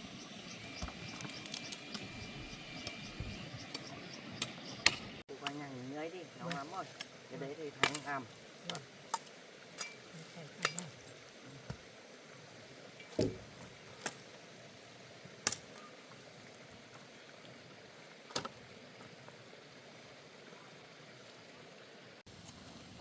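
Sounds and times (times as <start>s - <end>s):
sharp knocks: 13.2s - 13.5s.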